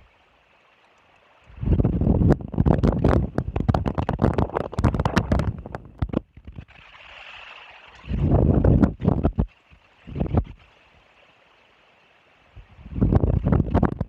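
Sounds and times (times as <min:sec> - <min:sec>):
wind buffeting microphone: 0:01.5 - 0:06.8, 0:08.0 - 0:10.7, 0:12.5 - 0:14.0.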